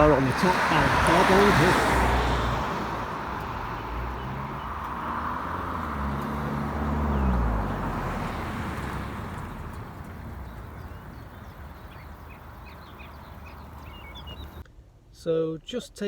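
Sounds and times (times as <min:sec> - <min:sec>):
wind and road noise: 0:00.0 - 0:15.2
sports car engine running: 0:02.8 - 0:14.6.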